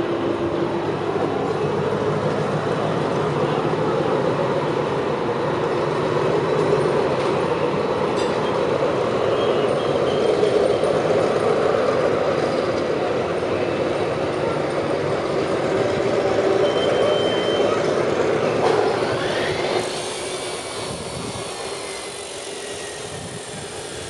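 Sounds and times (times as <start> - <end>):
train rumbling along rails: 0.0 - 24.0
faint high squeal: 16.6 - 17.9.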